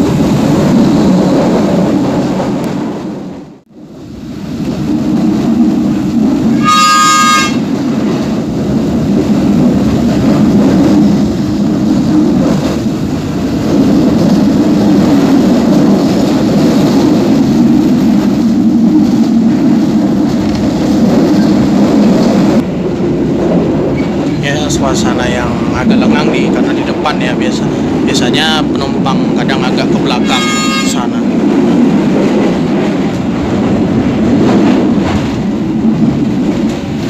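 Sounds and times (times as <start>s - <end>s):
passenger train rumbling: 0.0s - 37.0s
train horn: 6.6s - 7.7s, 30.2s - 31.2s.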